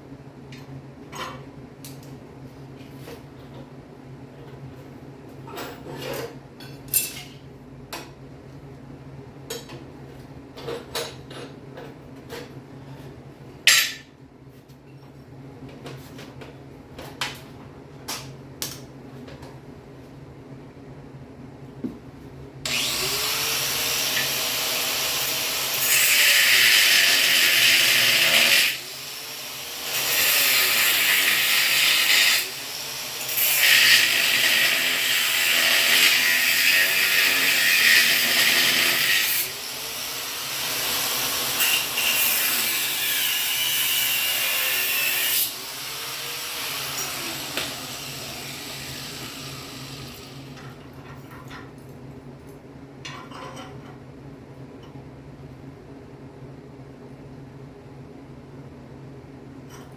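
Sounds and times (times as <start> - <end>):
power tool working metal: 22.7 - 50.6.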